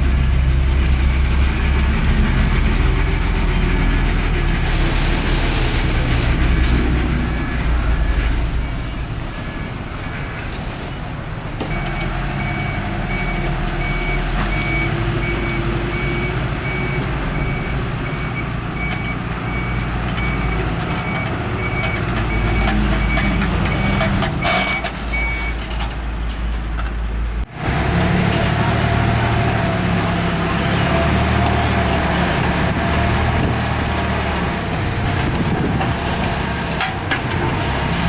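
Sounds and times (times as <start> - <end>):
construction machinery engine rumble: 0.0 - 38.0
reversing alarm beeping: 11.7 - 25.6.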